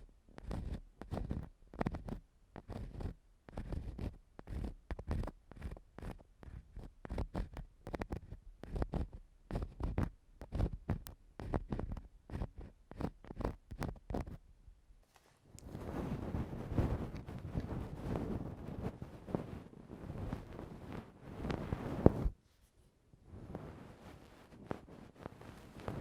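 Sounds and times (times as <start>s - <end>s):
tool scraping on microphone: 0.4s - 14.4s, 15.7s - 22.4s.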